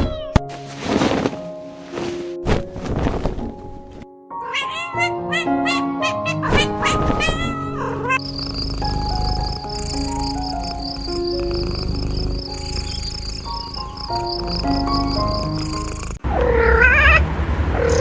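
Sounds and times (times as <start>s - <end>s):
background music: 0.3s - 16.2s
cat meowing: 4.4s - 17.2s
crickets chirping: 7.9s - 16.2s.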